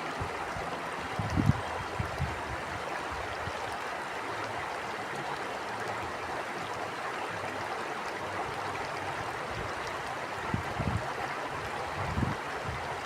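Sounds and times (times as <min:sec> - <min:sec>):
stream water flowing: 0:00.0 - 0:13.0
wind gusts on microphone: 0:00.2 - 0:03.3, 0:10.4 - 0:11.1, 0:11.7 - 0:13.0.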